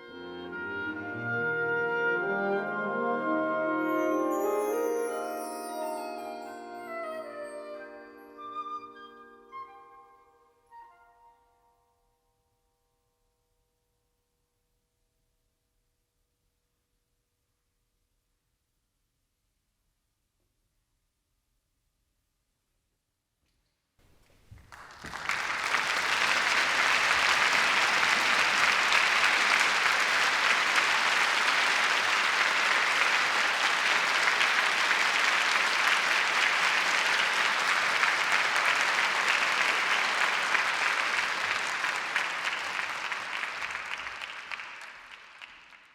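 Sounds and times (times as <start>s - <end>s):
audience applauding: 24.5s - 45.9s.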